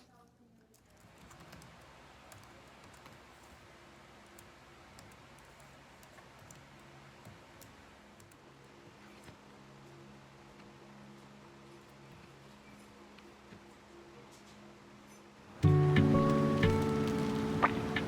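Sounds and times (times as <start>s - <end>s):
typing on computer keyboard: 0.8s - 3.6s.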